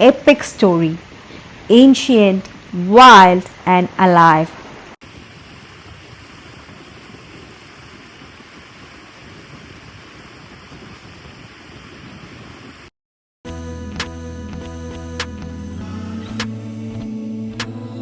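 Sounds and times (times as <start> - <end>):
background music: 13.5 - 18.0.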